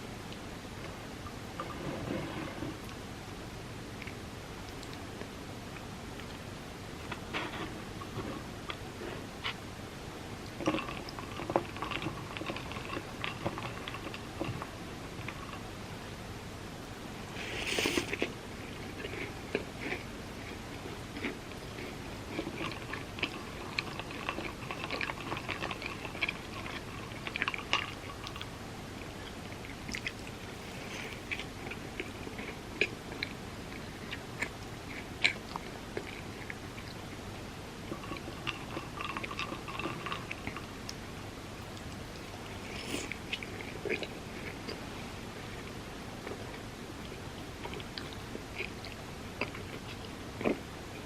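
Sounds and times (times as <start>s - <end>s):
chewing with wet mouth clicks: 4.0s - 6.4s, 10.4s - 15.7s, 17.8s - 41.0s, 41.6s - 51.0s.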